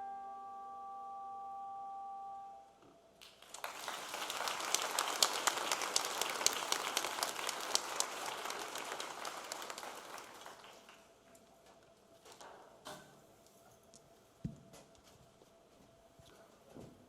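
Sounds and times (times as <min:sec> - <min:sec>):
audience applauding: 0:03.2 - 0:11.2.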